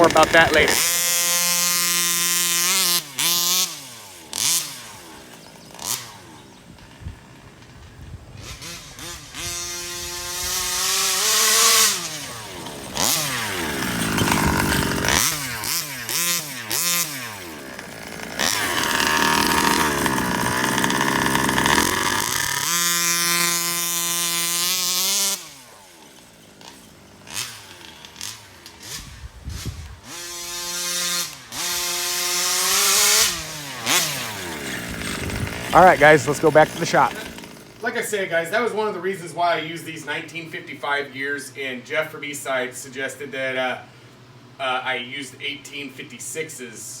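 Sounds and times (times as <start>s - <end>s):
two-stroke engine revving: 0.0s - 7.8s, 8.4s - 38.0s.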